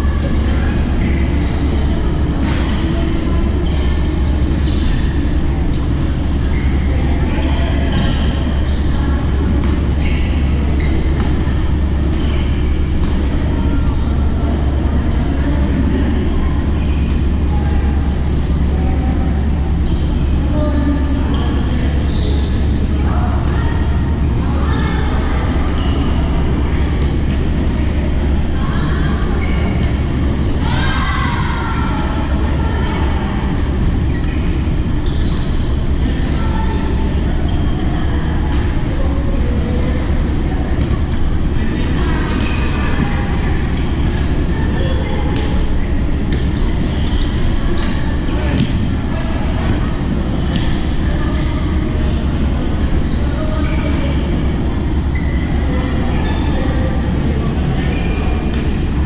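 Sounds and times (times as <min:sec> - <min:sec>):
loud steady low rumble: 0:00.0 - 0:22.0, 0:22.6 - 0:57.8
shoes squeaking on court floor: 0:01.0 - 0:13.3, 0:21.3 - 0:23.0, 0:34.0 - 0:37.9, 0:39.4 - 0:51.6, 0:52.3 - 0:56.6.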